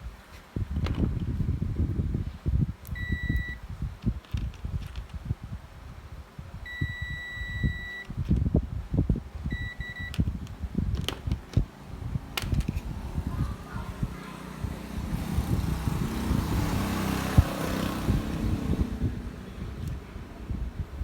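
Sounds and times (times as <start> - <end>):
electronic beeps: 3.0 - 3.6, 6.7 - 8.1, 9.5 - 10.2.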